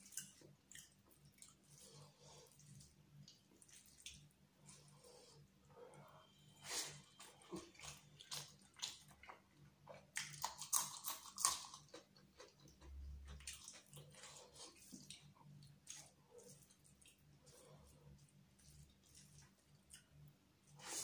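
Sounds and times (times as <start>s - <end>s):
wet chewing and lip smacks: 0.0s - 2.0s, 7.2s - 17.2s.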